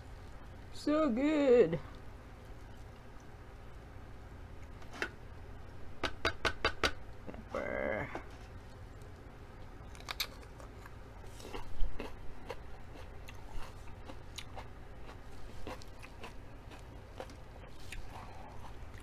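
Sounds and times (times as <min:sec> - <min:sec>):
crunching and chewing pepper: 0:08.5 - 0:19.0.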